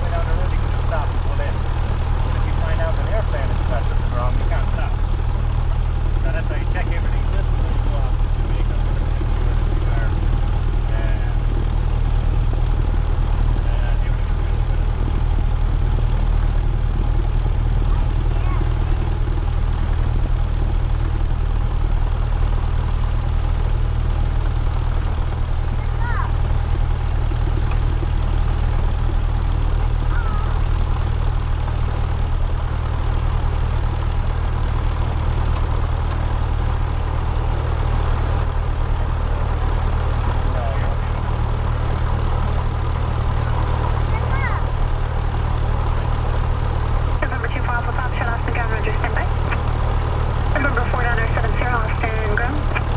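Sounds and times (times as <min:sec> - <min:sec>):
airplane engine and propeller drone: 0:00.0 - 0:52.9.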